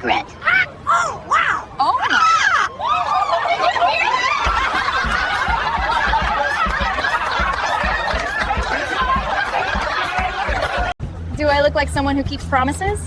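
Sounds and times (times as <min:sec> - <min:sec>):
people laughing: 0:01.8 - 0:11.0
low thumps: 0:04.4 - 0:10.9.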